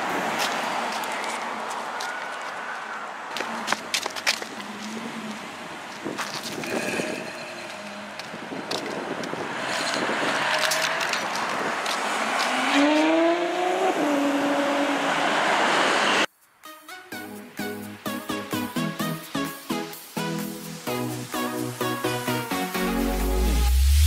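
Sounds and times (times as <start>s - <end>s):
car engine and exhaust revving: 4.6s - 16.3s.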